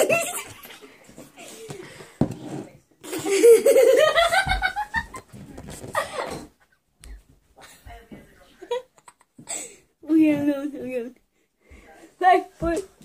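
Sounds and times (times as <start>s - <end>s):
boys laughing: 0.0s - 1.7s, 3.0s - 7.9s.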